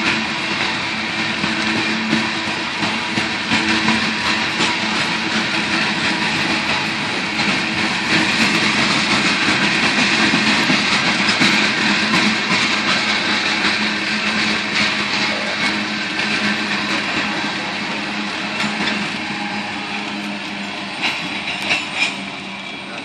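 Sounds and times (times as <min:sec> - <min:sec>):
clickety-clack over rail joints: 0:00.0 - 0:23.0
train wheels rumbling on rail: 0:00.0 - 0:23.0.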